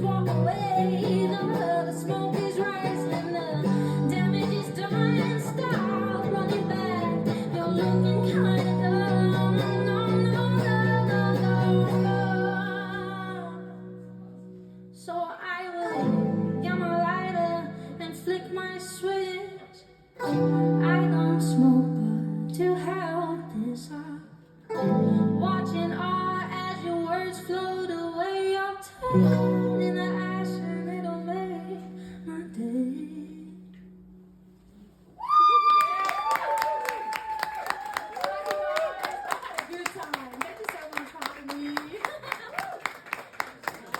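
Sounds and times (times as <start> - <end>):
acoustic guitar chords: 0.0 - 19.6, 20.2 - 34.7.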